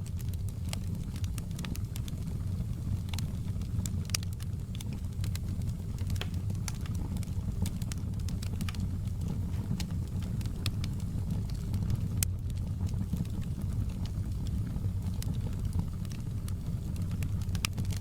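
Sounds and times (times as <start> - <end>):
burning logs rumbling: 0.0 - 18.0
fire popping and snapping: 0.0 - 18.0.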